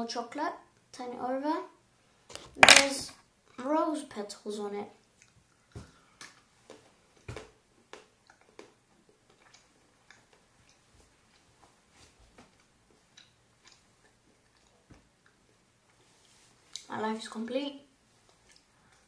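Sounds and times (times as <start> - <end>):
faint mouth clicks chewing: 5.2 - 7.3, 7.9 - 11.7, 12.5 - 16.1, 18.3 - 19.0.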